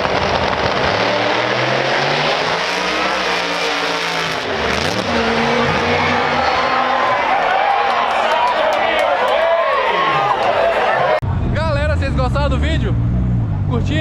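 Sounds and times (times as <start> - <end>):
race car engine running hard: 0.0 - 8.0.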